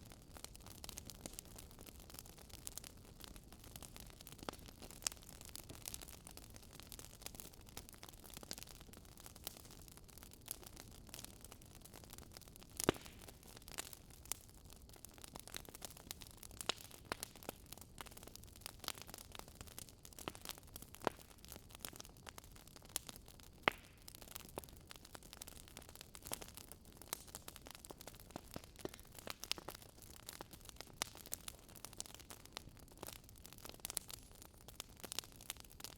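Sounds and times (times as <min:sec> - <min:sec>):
wood fire crackling: 0:00.0 - 0:35.9
fire pops: 0:12.7 - 0:14.4, 0:15.6 - 0:22.4, 0:23.0 - 0:35.9.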